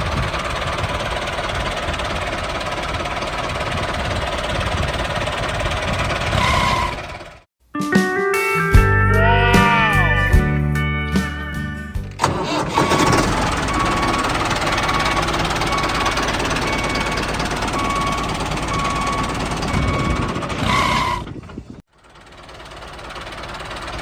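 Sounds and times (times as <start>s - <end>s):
short beeps: 13.6s - 21.2s.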